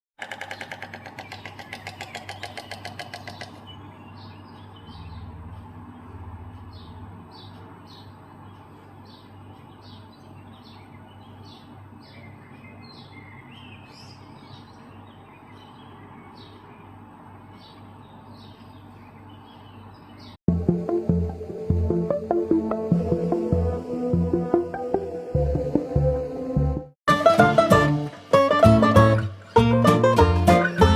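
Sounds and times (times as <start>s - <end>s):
storks clattering bills: 0.2s - 3.6s
small birds chirping: 0.4s - 20.4s
steady low hum: 20.5s - 27.0s.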